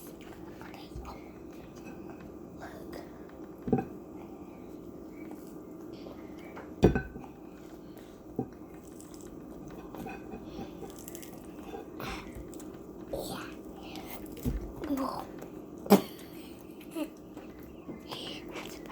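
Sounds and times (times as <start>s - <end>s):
steady low hum: 0.0s - 18.9s
tableware knocking on table: 6.8s - 7.2s.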